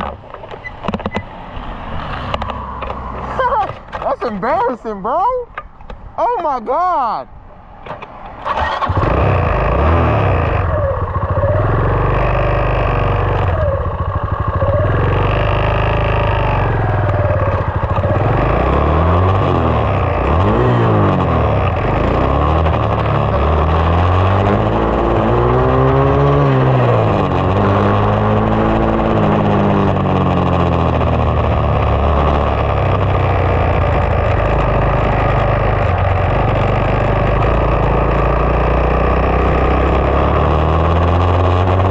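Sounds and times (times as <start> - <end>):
dirt bike engine revving: 8.4 - 41.9.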